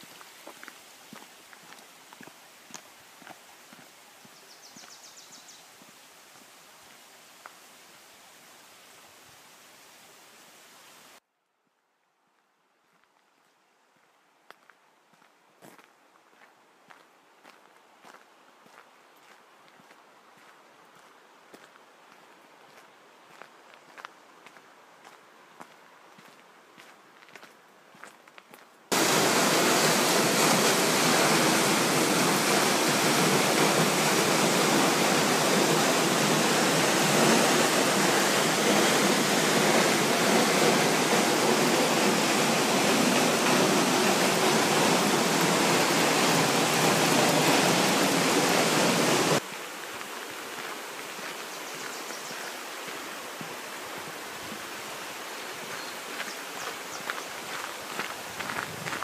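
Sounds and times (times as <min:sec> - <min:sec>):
waterfall rushing: 0:28.9 - 0:51.4.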